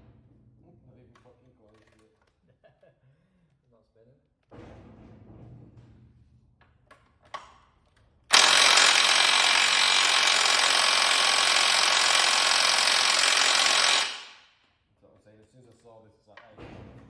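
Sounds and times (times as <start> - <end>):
impact wrench running: 8.3 - 14.5.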